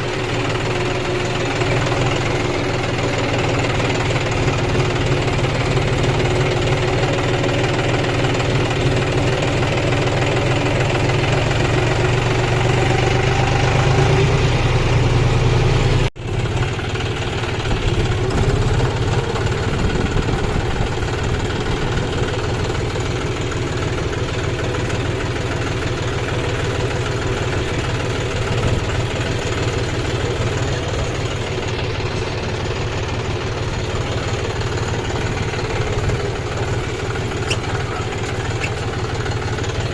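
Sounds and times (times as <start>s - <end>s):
combine harvester diesel engine: 0.0s - 39.9s.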